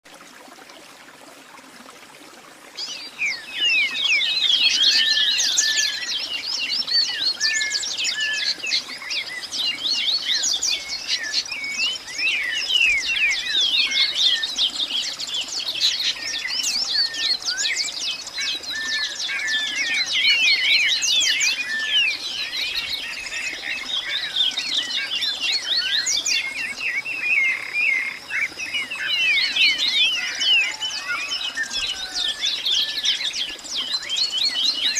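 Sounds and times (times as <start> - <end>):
birds chirping in chorus: 2.8 - 34.9.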